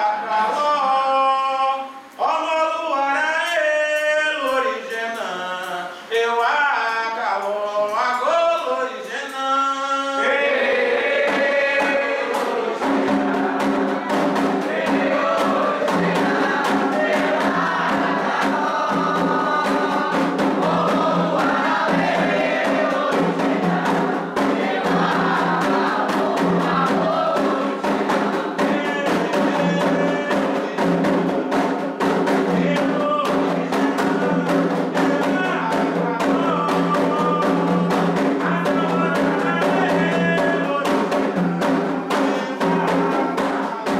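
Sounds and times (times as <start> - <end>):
lead voice singing: 0.0 - 43.9
chorus singing in response: 4.3 - 43.9
rapid hand drumming: 10.4 - 43.9.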